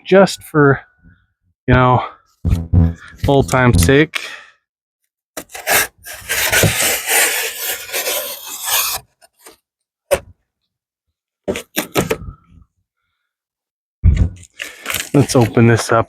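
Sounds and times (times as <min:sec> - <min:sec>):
cardboard box scraping: 0:05.4 - 0:09.5.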